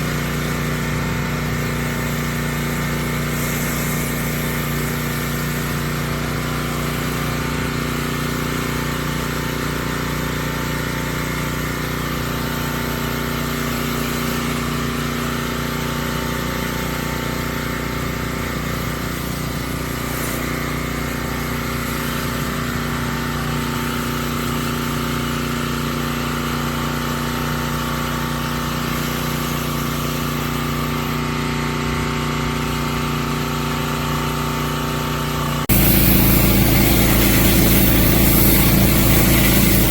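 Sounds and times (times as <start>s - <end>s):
water spray hiss: 0.0s - 10.5s, 16.8s - 22.9s, 35.7s - 39.9s
pressure washer engine running: 0.0s - 39.9s.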